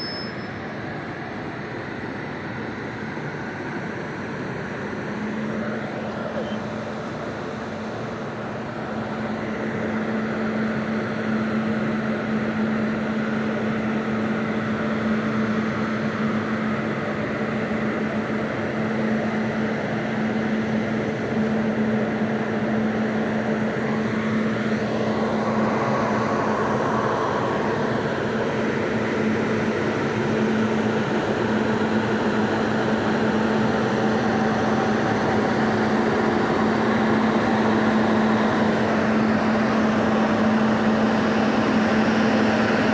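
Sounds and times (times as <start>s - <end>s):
locomotive mechanical drone: 0.0s - 42.9s.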